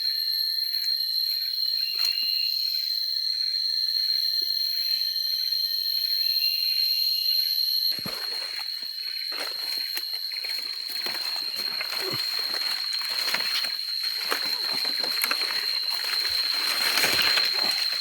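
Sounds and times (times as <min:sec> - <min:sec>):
high-pitched insect chorus: 0:00.0 - 0:18.0
rustling and shuffling: 0:08.0 - 0:18.0.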